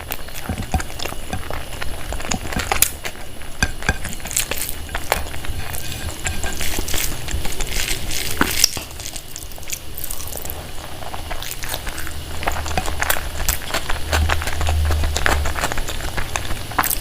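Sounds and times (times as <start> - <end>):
chewing and wet mouth sounds: 0.0 - 17.0.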